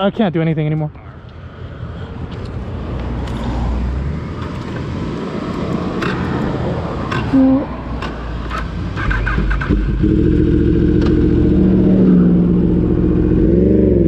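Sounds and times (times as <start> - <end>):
rushing wind: 1.1 - 14.0
motorcycle engine rumble: 4.4 - 14.0.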